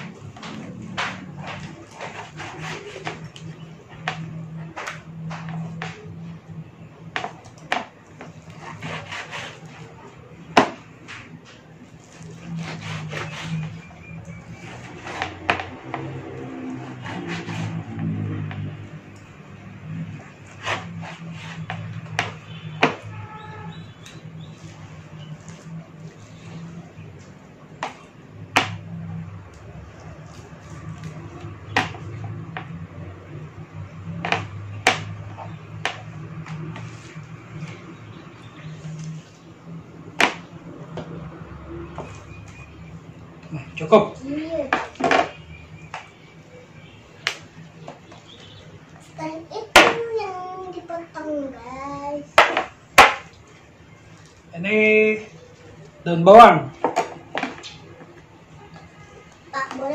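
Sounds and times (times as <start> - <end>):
knife chopping on cutting board: 0.0 - 3.4, 7.2 - 9.9, 12.4 - 13.8, 16.8 - 17.8, 20.5 - 23.1
knife sawing through meat: 1.5 - 3.2, 8.5 - 9.9, 12.1 - 13.9, 16.8 - 17.8.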